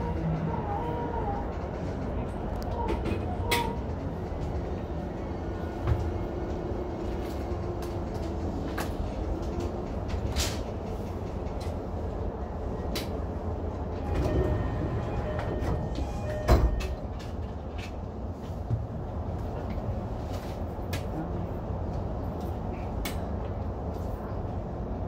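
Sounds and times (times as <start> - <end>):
train interior rumble: 0.0 - 25.0.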